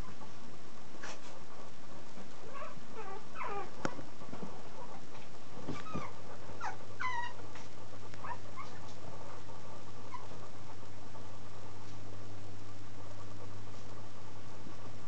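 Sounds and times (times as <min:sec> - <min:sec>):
puppy whimpering: 0:02.4 - 0:03.8, 0:05.7 - 0:07.4, 0:08.2 - 0:08.9, 0:10.1 - 0:10.4.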